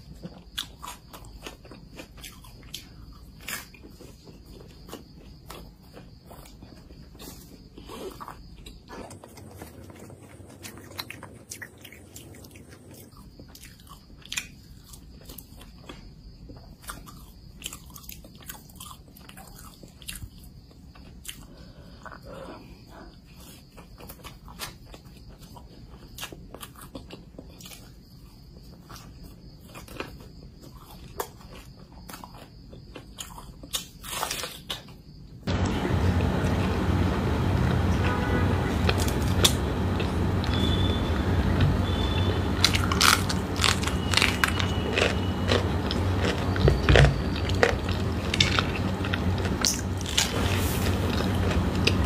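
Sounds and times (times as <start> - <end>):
wet chewing: 0.0 - 37.9, 38.5 - 52.0
crisp pastry crunching: 29.7 - 37.9, 38.7 - 52.0.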